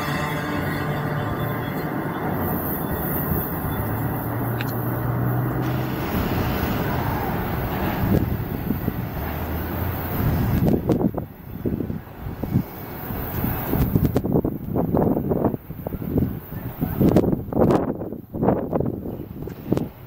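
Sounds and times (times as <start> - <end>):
train bumps: 0.0 - 11.3
freight train wheels rumbling: 0.0 - 20.0.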